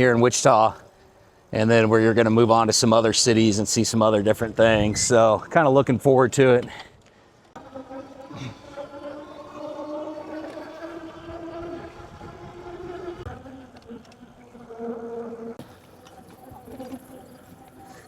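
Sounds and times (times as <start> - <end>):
electric motor whining: 7.5 - 18.0
wind and road noise: 10.2 - 14.7.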